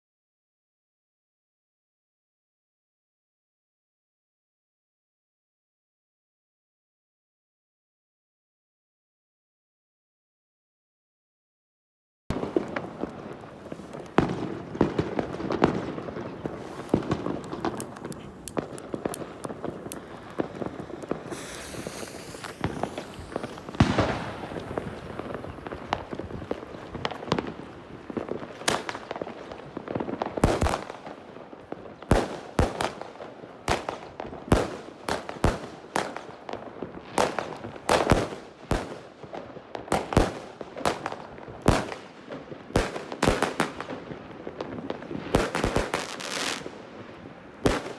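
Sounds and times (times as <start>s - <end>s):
fireworks aerial bursts: 12.3s - 31.2s, 42.7s - 47.0s
fireworks launch thumps: 13.8s - 27.5s.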